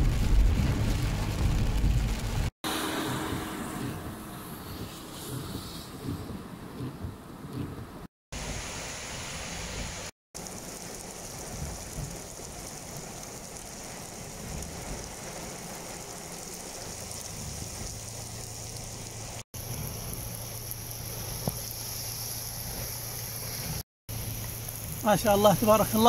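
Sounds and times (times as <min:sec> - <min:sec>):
heavy rain on pavement: 0:00.0 - 0:03.0, 0:08.3 - 0:26.0.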